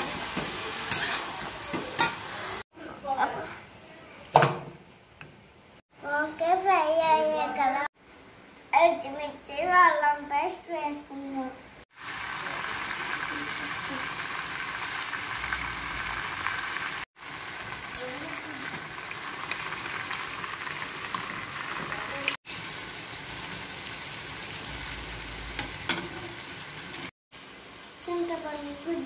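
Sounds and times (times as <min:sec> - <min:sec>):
vegetables sizzling in oil: 0:00.0 - 0:02.6, 0:11.9 - 0:29.0
spatula scraping and stirring: 0:00.2 - 0:02.2.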